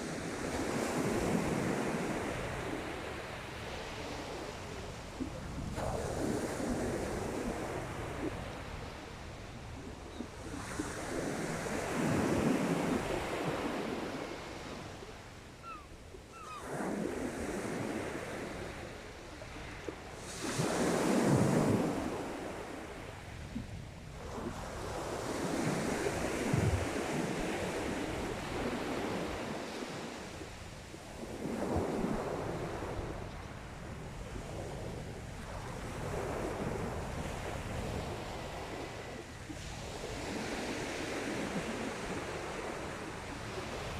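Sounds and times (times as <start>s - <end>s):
sea waves breaking on shore: 0.0s - 43.9s
wind rumbling on microphone: 0.6s - 14.2s, 23.1s - 29.7s.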